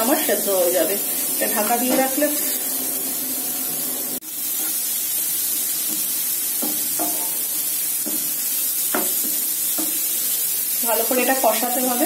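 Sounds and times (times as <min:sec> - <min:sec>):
lentils sizzling in a frying pan: 0:00.0 - 0:12.0
spatula scraping a pan: 0:05.8 - 0:08.3.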